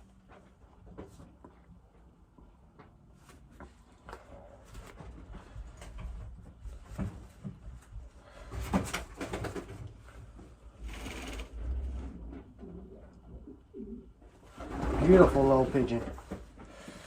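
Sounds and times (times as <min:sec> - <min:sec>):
pigeons cooing: 0:12.6 - 0:14.2.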